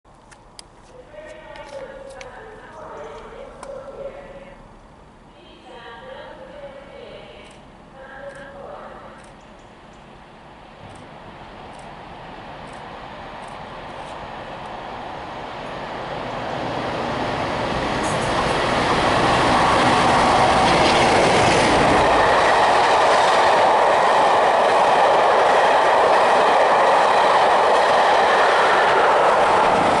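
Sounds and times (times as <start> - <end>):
diesel locomotive passing: 7.8 - 30.0
train wheels rumbling on rail: 9.2 - 30.0.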